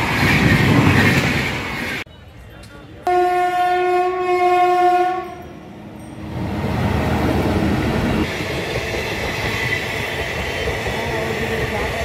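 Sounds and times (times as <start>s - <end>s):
train coaches rumbling past: 0.0s - 12.0s
train horn blast: 3.1s - 5.4s.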